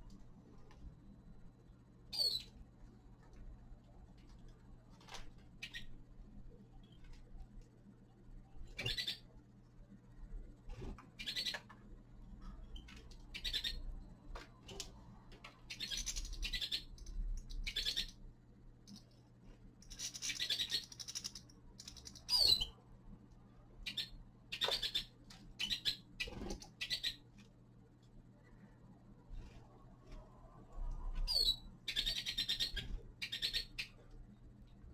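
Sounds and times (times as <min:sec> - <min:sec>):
steady low hum: 0:00.0 - 0:34.9
finches chirping: 0:02.1 - 0:02.6, 0:05.5 - 0:06.0, 0:08.6 - 0:09.4, 0:10.8 - 0:11.7, 0:12.5 - 0:14.9, 0:15.6 - 0:18.2, 0:19.8 - 0:22.8, 0:23.8 - 0:27.3, 0:31.2 - 0:34.1.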